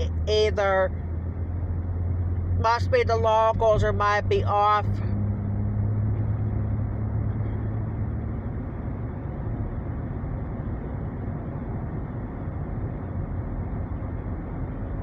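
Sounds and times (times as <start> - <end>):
car cabin road and engine noise: 0.0 - 15.0
low hum: 0.0 - 15.0.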